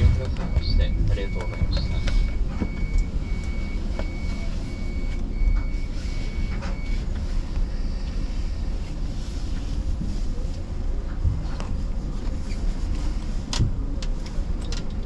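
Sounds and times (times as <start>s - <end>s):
train standing rumble: 0.0s - 5.8s
high electronic beeps: 0.0s - 7.0s.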